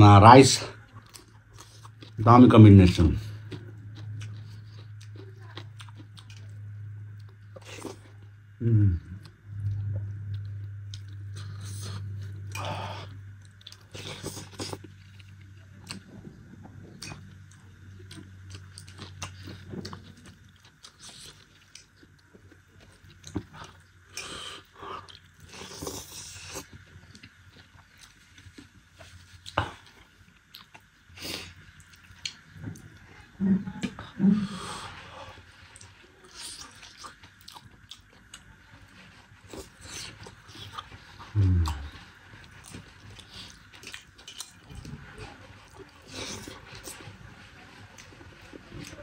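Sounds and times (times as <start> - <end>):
man chewing and smacking: 0.9 - 2.2, 3.2 - 8.2, 9.1 - 33.0, 34.8 - 49.0
man humming: 8.6 - 9.2, 41.3 - 42.0.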